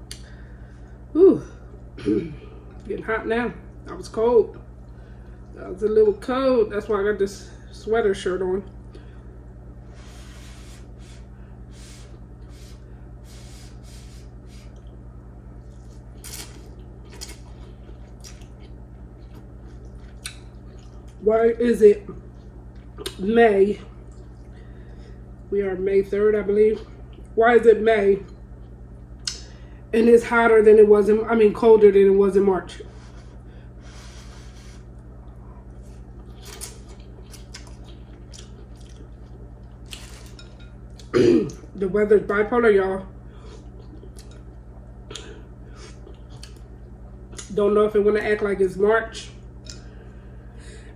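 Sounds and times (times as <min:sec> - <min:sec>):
steady low hum: 0:00.0 - 0:50.9
person eating noodles: 0:09.9 - 0:14.9, 0:35.7 - 0:41.1
person chewing noodles: 0:15.6 - 0:21.2, 0:24.0 - 0:24.5, 0:32.9 - 0:41.1, 0:43.4 - 0:47.4.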